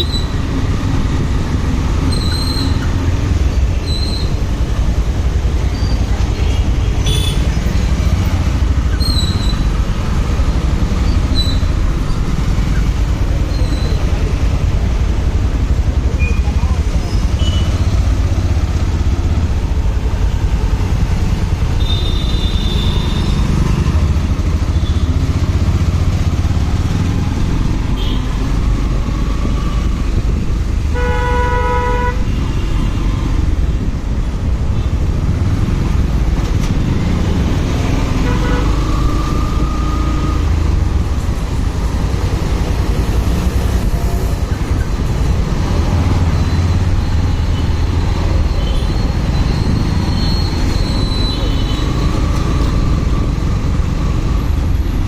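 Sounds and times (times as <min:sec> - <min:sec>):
motorcycle engine and road rumble: 0:00.0 - 0:55.0
vehicle horn: 0:07.0 - 0:07.4, 0:30.9 - 0:32.9, 0:38.2 - 0:38.8.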